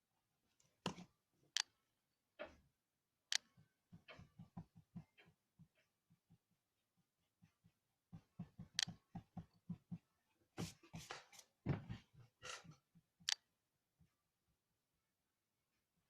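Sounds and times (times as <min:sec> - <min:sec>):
pencil scratching on paper: 0:07.2 - 0:11.5.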